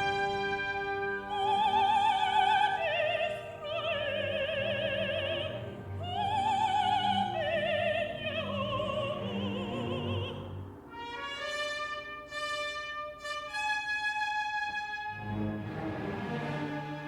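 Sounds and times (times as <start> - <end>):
orchestra playing: 0.0 - 17.0
woman singing with vibrato: 1.2 - 10.7.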